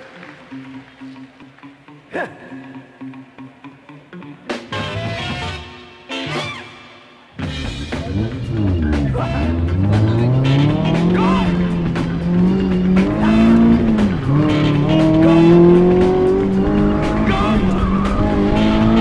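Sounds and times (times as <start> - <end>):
music: 0.0 - 19.0
car engine revving hard: 7.5 - 19.0.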